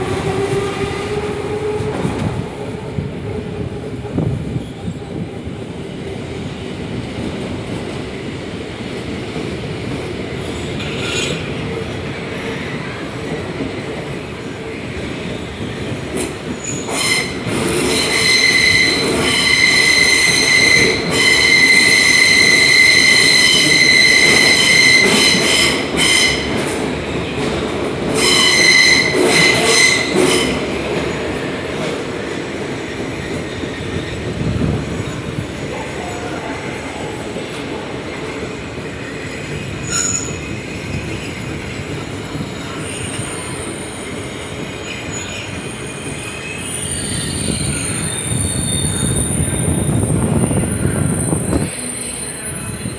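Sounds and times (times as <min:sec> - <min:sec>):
train rumbling inside carriage: 0:00.0 - 0:52.9
train wheels squealing: 0:10.4 - 0:13.4, 0:14.4 - 0:27.5, 0:28.1 - 0:30.8, 0:38.8 - 0:52.9.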